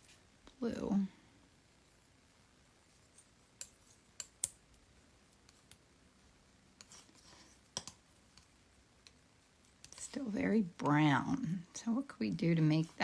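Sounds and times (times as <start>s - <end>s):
paint mixing taps and clicks: 3.0s - 11.2s
scraping on palette: 6.8s - 10.6s.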